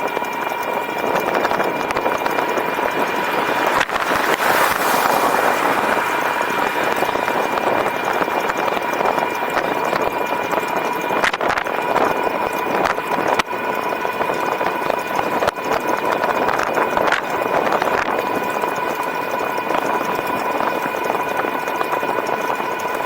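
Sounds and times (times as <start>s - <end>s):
wind and tyre noise: 0.0s - 23.0s
electric motor whine: 1.0s - 9.2s.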